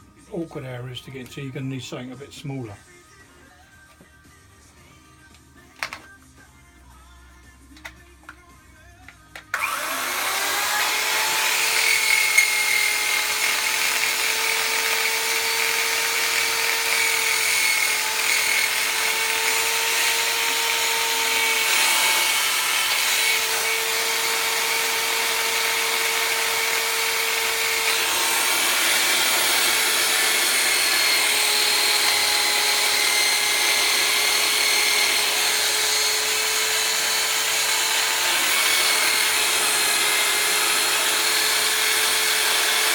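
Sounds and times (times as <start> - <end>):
rotary power tool whining: 9.5 - 42.9.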